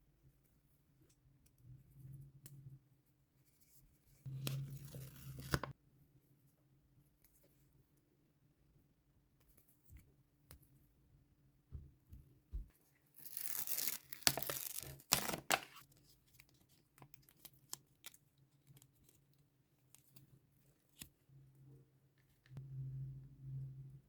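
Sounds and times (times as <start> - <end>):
packaging being torn open: 13.2 - 15.8.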